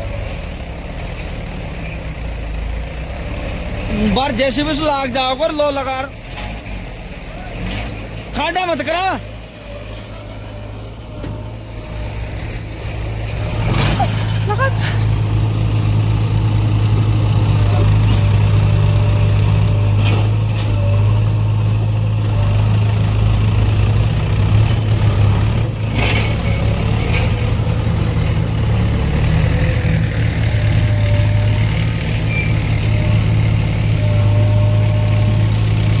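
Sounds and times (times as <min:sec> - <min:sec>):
heavy diesel engine running: 0:00.0 - 0:36.0.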